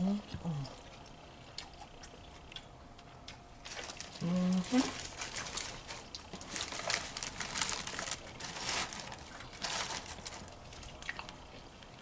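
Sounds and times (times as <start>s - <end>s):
crinkling and rustling wrapping: 3.6s - 11.5s.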